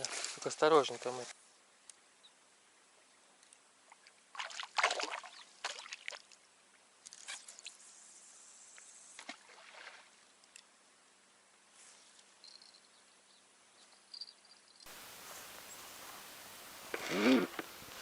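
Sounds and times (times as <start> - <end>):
water splashing and sloshing: 3.9 - 6.4, 9.2 - 10.3.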